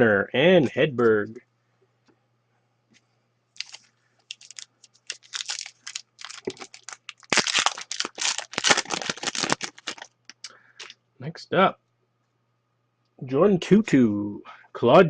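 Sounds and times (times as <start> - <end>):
foil wrapper crinkling and tearing: 3.6 - 10.9.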